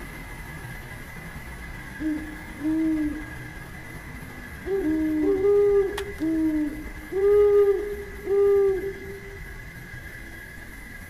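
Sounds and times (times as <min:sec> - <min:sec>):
bird hooting calls: 0:02.0 - 0:03.7, 0:04.4 - 0:09.6.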